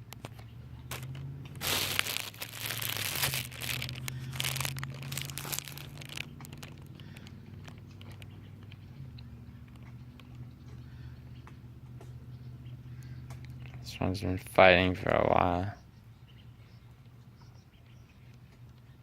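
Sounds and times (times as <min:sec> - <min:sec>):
crinkling rustling: 0:00.2 - 0:08.7.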